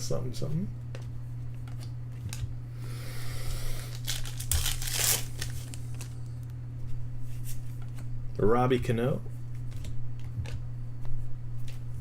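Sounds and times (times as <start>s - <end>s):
foil wrapper tearing and crinkling: 3.8s - 6.2s.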